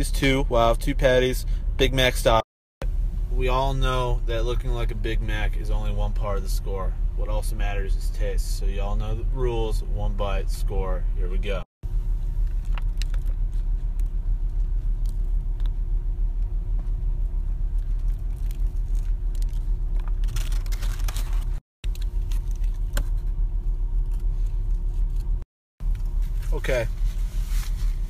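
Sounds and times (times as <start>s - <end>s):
car engine idling: 11.9s - 28.0s
paper wrapper crinkling: 12.4s - 15.4s, 17.7s - 23.3s.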